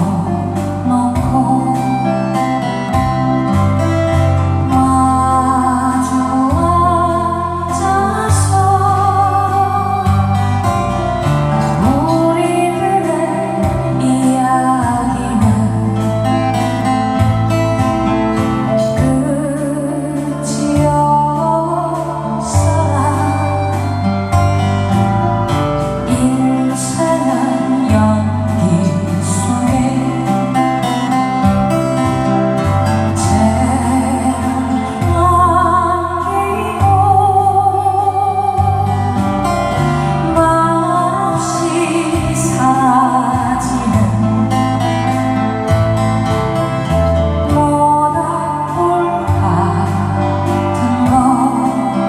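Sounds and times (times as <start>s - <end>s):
strummed acoustic guitar: 0.0s - 52.0s
woman singing a slow ballad: 0.0s - 52.0s.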